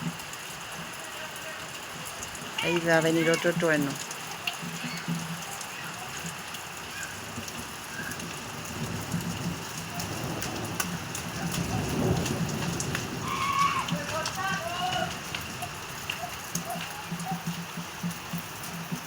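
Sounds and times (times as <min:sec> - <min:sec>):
steady rain falling: 0:00.0 - 0:19.0
low rumble of thunder: 0:07.2 - 0:16.0.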